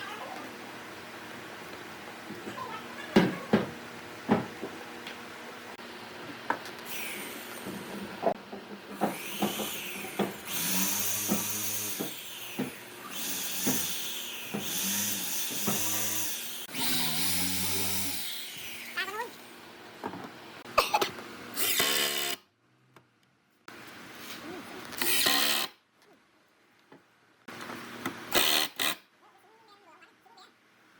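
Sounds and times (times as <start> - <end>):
motor hum: 0.0 - 22.4
power tool cutting wood: 9.0 - 19.0, 21.6 - 22.4, 28.3 - 29.0.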